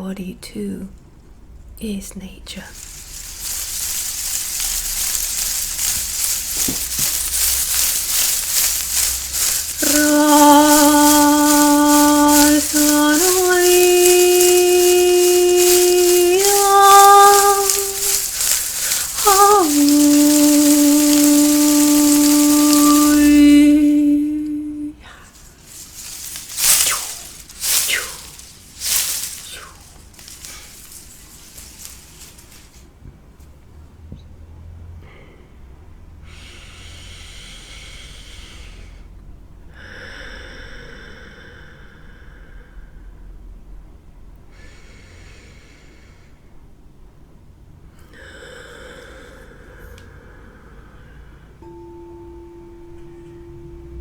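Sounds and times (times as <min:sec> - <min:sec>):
low steady hum: 0:00.0 - 0:32.8, 0:51.6 - 0:54.0
rattle shaking: 0:02.6 - 0:32.9
woman singing long held notes: 0:02.8 - 0:29.8.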